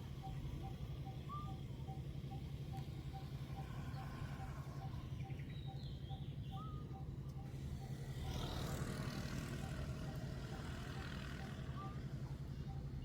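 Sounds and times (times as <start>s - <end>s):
low engine-like drone: 0.0s - 13.0s
bird chirps: 4.8s - 7.1s.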